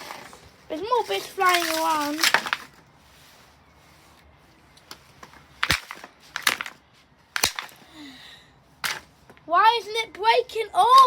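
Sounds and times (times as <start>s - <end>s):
sharp knocks and cracks: 1.4s - 2.8s, 5.6s - 6.8s, 7.4s - 7.8s.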